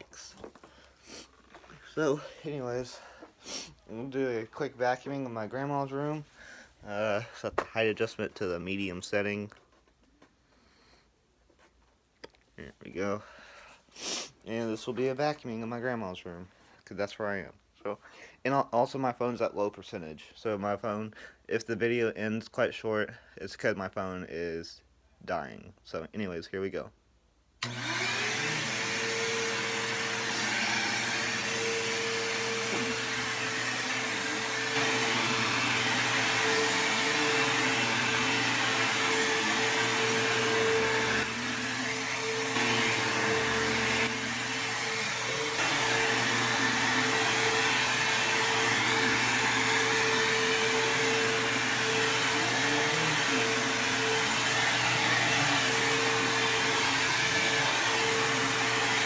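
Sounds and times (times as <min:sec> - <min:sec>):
upright vacuum cleaner running: 0:27.6 - 0:59.0.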